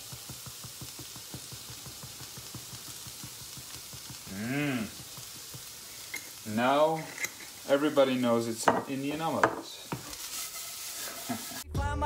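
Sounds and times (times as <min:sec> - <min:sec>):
vegetables sizzling in a pan: 0:00.0 - 0:11.7
man humming mmm: 0:04.2 - 0:05.0.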